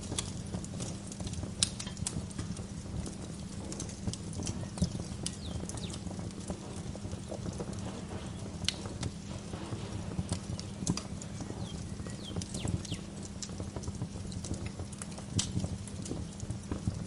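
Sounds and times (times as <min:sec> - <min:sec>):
low rumble of burning logs: 0:00.0 - 0:17.0
wood fire crackling: 0:00.0 - 0:17.0
faint bird chirps: 0:04.6 - 0:06.0, 0:11.2 - 0:13.1.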